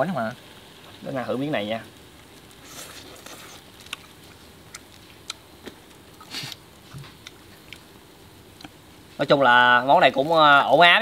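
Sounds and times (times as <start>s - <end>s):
faint steady hiss: 0.0s - 11.0s
rustle: 0.0s - 11.0s
person chewing food: 2.6s - 7.9s.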